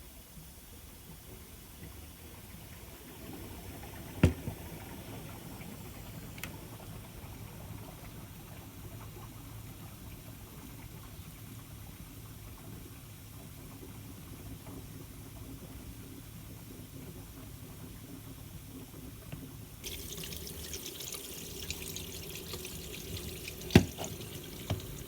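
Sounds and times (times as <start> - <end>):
washing machine running: 19.8 - 25.0.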